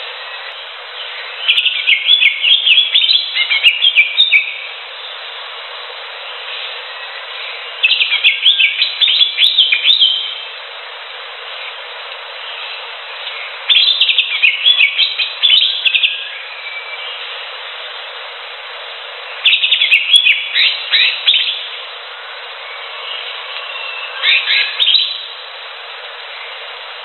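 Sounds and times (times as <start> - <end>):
steady hiss: 0.0 - 27.0
bird chirping and whistling: 1.1 - 4.6, 7.8 - 10.4, 13.7 - 17.2, 19.4 - 21.7, 22.7 - 25.3.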